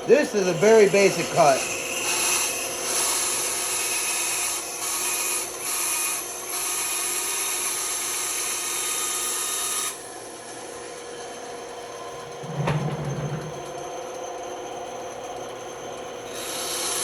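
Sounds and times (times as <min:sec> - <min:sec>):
band saw cutting wood: 0:00.0 - 0:09.9
band saw running: 0:00.0 - 0:10.5, 0:16.2 - 0:17.0.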